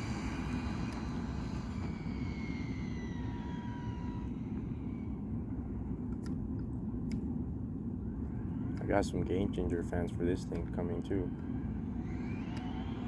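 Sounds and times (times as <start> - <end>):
rc car electric motor whining: 0.0 - 5.5, 11.2 - 13.0.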